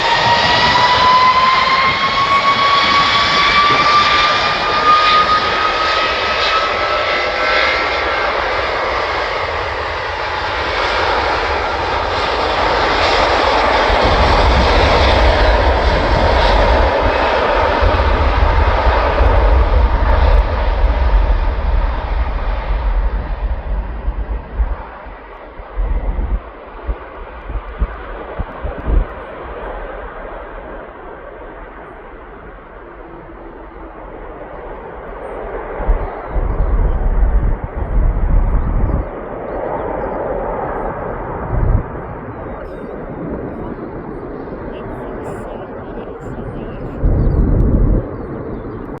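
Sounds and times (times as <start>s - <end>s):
jet fan whine rising in pitch: 0.0s - 26.4s
deep rumble: 0.0s - 49.0s
jet engine roar: 0.0s - 49.0s.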